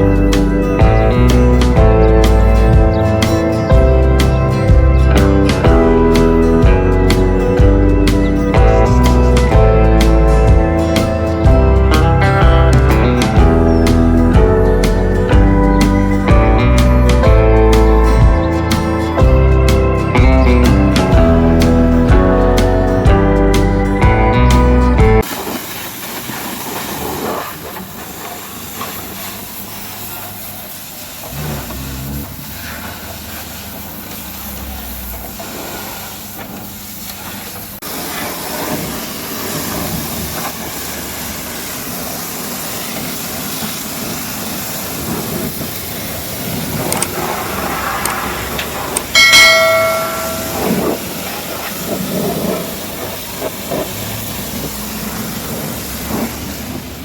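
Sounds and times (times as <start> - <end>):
pressure washer spraying water: 0.0 - 23.9, 25.2 - 57.0
loud pitched tone: 49.2 - 51.1.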